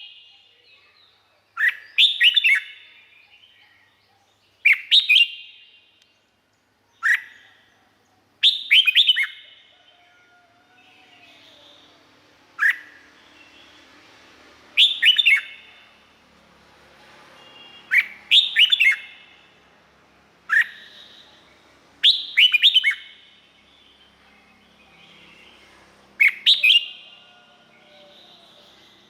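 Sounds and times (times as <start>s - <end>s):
bird singing whistled notes: 0.0s - 6.2s, 6.9s - 7.7s, 8.4s - 9.8s, 12.6s - 13.9s, 14.8s - 15.8s, 17.4s - 19.5s, 20.5s - 25.6s, 26.2s - 29.0s.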